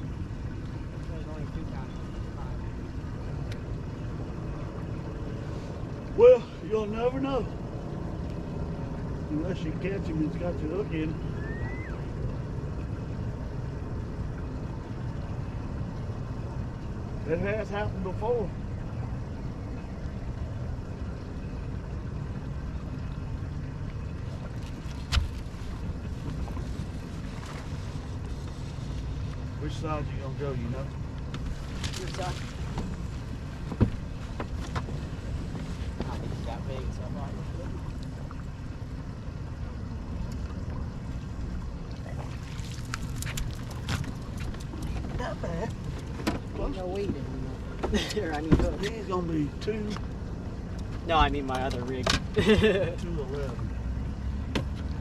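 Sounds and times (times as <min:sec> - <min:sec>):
boat engine rumble: 0:00.0 - 0:55.0
sharp taps and splashes: 0:23.9 - 0:29.4, 0:31.1 - 0:36.2, 0:41.9 - 0:45.2.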